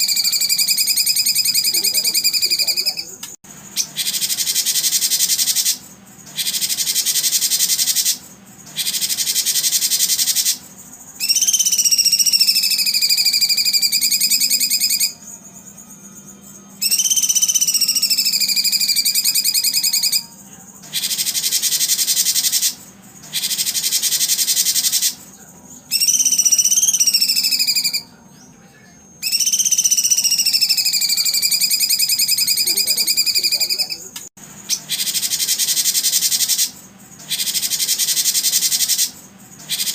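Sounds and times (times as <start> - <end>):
shrill buzzing bird trills: 0.0 - 28.2, 29.1 - 39.9.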